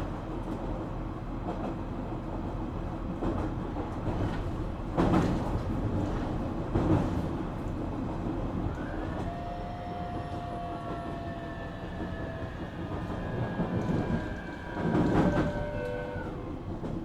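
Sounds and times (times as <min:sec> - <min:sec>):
wheel and track rumble: 0:00.0 - 0:17.0
electric train motors whining: 0:08.1 - 0:17.0.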